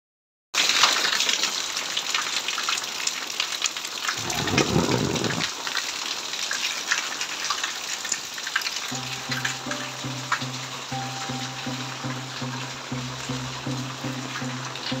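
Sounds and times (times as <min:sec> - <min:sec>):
heavy rain falling: 0:00.6 - 0:15.0.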